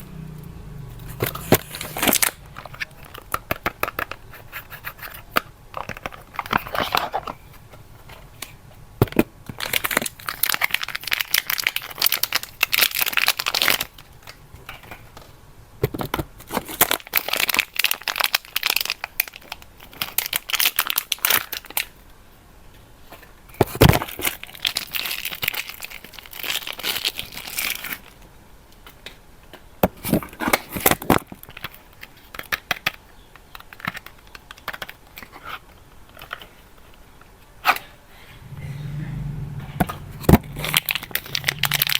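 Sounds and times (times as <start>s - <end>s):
wrapper crinkling and tearing: 1.2s - 4.6s, 9.6s - 15.0s, 16.5s - 21.9s, 24.0s - 28.2s, 40.6s - 41.9s.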